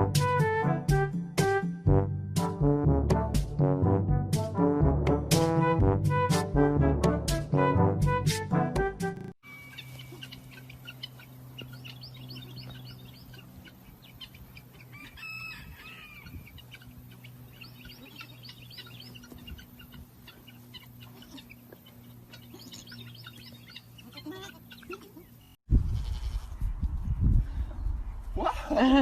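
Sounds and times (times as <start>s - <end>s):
steady low hum: 9.5s - 14.9s, 16.1s - 25.6s
chickens calling: 9.5s - 25.6s.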